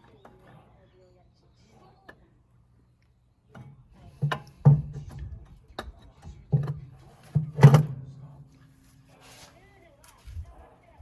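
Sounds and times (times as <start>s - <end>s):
sharp knocks and clunks: 3.5s - 8.0s.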